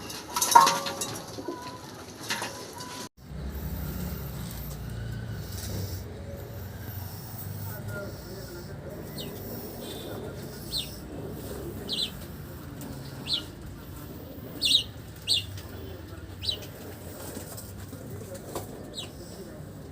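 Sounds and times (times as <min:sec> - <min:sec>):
bird chirping: 0:08.0 - 0:16.8.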